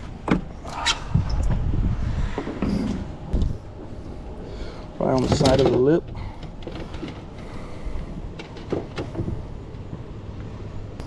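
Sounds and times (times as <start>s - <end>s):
wind on microphone: 0.0s - 4.3s.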